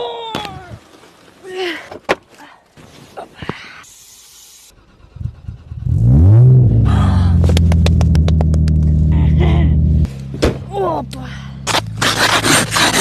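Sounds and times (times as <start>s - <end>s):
car engine starting and idling: 4.7s - 10.3s.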